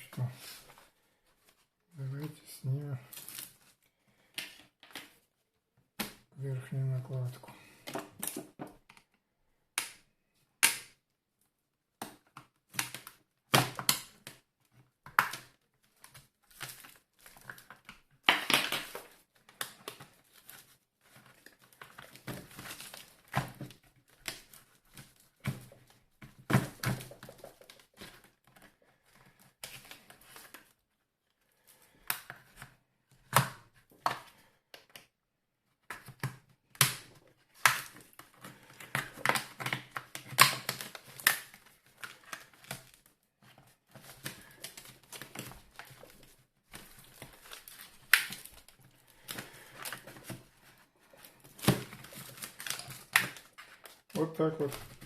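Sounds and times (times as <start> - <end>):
tool prying plastic cover: 12.0 - 14.4, 15.0 - 30.5, 35.9 - 50.4, 51.2 - 55.0.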